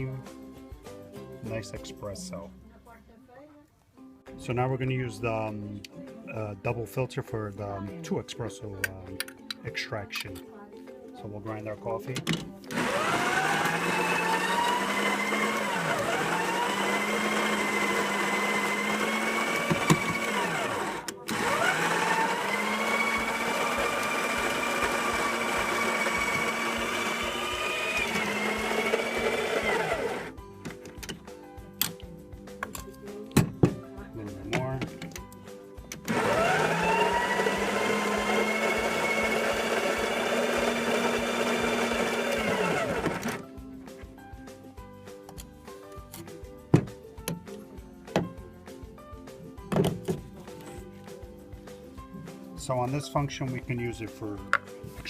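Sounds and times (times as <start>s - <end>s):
coffee grinder motor whining: 12.7s - 30.4s, 36.0s - 43.5s.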